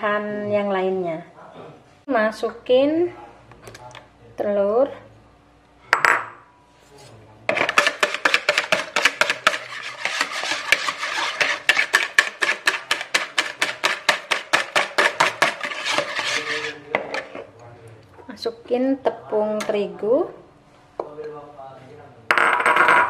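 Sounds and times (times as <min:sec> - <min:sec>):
whisk clattering against plastic bowl: 0:07.5 - 0:17.4.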